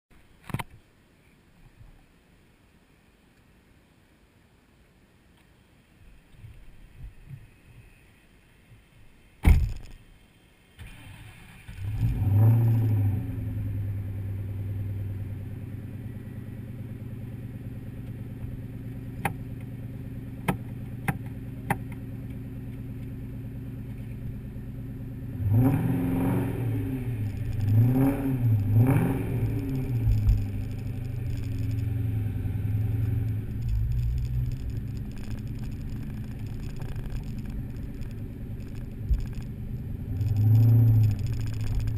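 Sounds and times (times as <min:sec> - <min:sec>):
car engine starting and idling: 0:10.6 - 0:41.9
engine revving: 0:10.9 - 0:15.3, 0:25.2 - 0:41.9
sharp clicks: 0:27.2 - 0:27.9, 0:29.4 - 0:32.0, 0:33.0 - 0:41.9.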